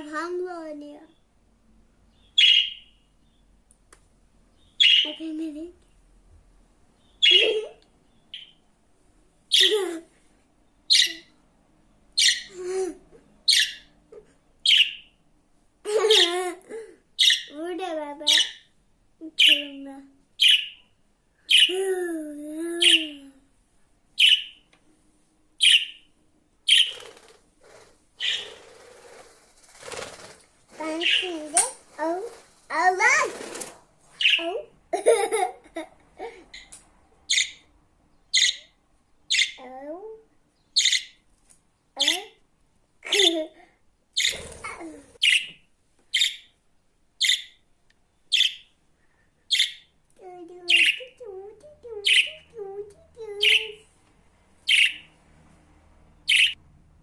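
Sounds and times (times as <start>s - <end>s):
budgerigar chirping: 2.2s - 3.0s, 10.9s - 11.3s, 12.2s - 12.5s, 13.5s - 13.9s, 14.7s - 15.1s, 20.4s - 20.8s, 24.2s - 24.6s, 25.6s - 26.1s, 26.7s - 27.2s, 28.2s - 28.7s, 37.3s - 37.6s, 38.3s - 38.7s, 40.8s - 41.2s, 44.2s - 44.6s, 45.2s - 45.5s, 46.2s - 46.5s, 47.2s - 47.6s, 48.3s - 48.7s, 49.5s - 49.9s, 54.7s - 55.1s, 56.3s - 56.6s
budgerigar chirps: 2.4s - 2.9s, 47.2s - 47.6s, 54.7s - 55.1s, 56.3s - 56.6s.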